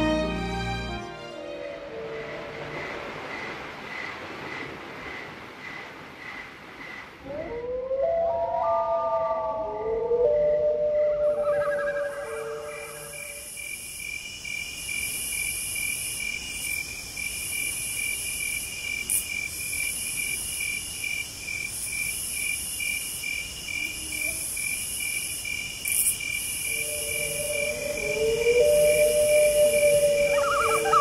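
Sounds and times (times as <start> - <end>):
crickets chirping: 1.4 - 31.0
shrill insect buzz: 25.9 - 31.0
low held tones: 26.7 - 31.0.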